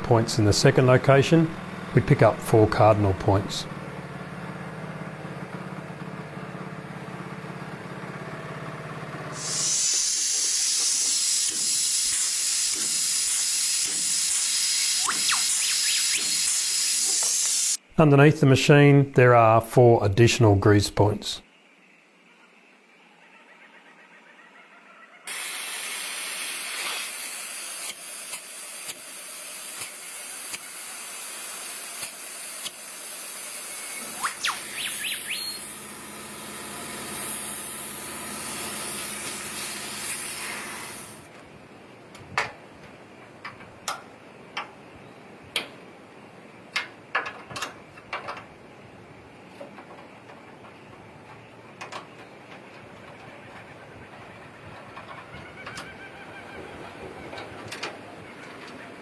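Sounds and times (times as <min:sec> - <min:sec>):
low motor hum: 0:00.0 - 0:09.9, 0:33.7 - 0:41.8
spray hissing: 0:09.4 - 0:17.8.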